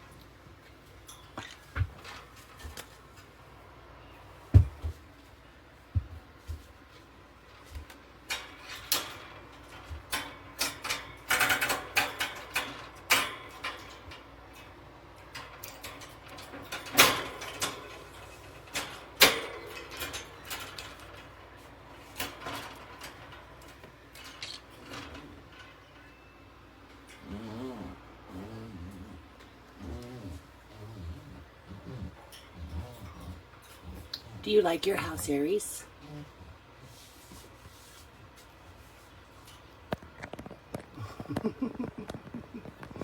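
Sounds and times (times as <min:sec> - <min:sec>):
wire bird cage rattling: 0:08.2 - 0:26.2.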